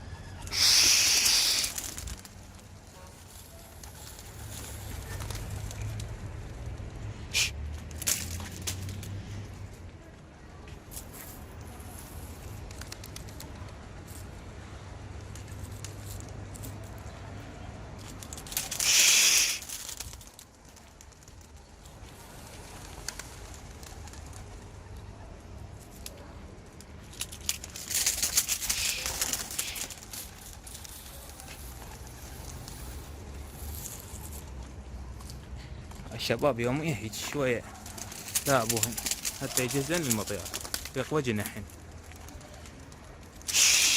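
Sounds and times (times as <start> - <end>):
pigeons cooing: 0.0 - 2.2
wings flapping: 0.4 - 6.1, 12.4 - 13.8, 18.1 - 24.8, 27.2 - 33.2, 37.6 - 43.9.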